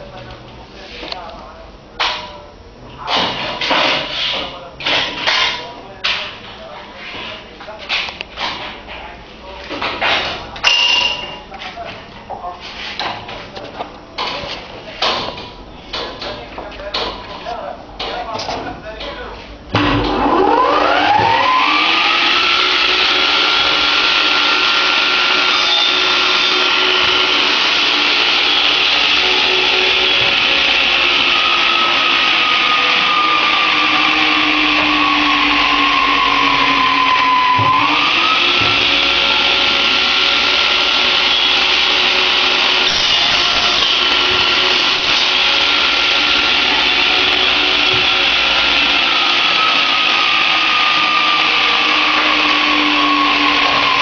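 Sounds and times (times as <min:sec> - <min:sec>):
power tool motor whine: 0:20.0 - 0:54.0.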